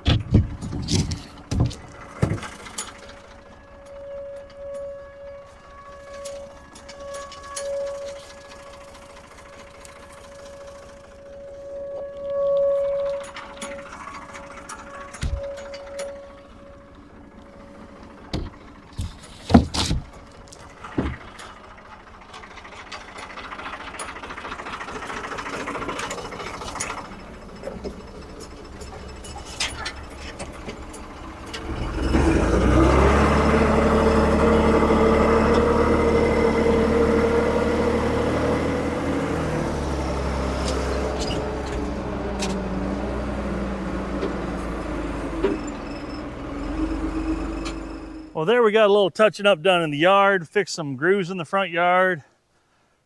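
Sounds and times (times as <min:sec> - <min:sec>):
sharp knocks: 0:00.0 - 0:02.7, 0:18.3 - 0:20.2
diesel engine running and revving: 0:00.0 - 0:48.4.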